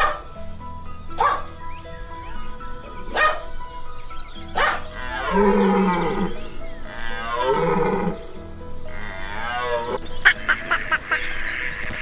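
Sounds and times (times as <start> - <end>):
soft background music: 0.0 - 12.0
deer calling: 1.0 - 12.0.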